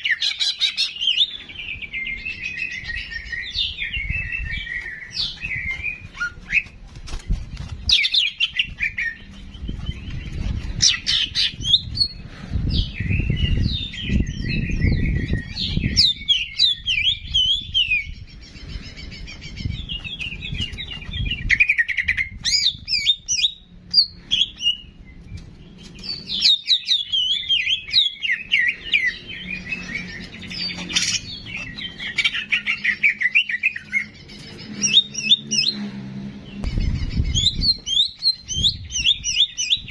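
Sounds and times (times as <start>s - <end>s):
low rumble: 35.7s - 39.0s.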